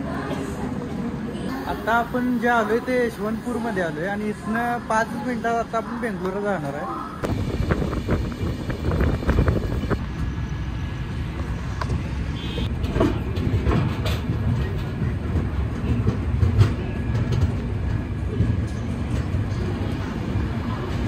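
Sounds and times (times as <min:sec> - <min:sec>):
train coach rumble: 0:07.2 - 0:21.0.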